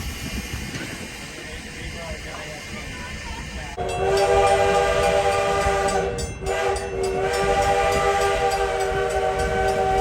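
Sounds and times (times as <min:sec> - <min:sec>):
low rumble of moving train: 0:00.0 - 0:10.0
train whistle blasts: 0:03.8 - 0:10.0.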